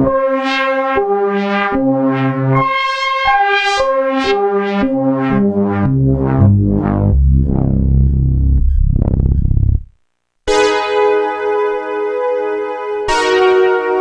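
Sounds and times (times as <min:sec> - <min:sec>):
synthesizer notes and chords: 0:04.6 - 0:14.0.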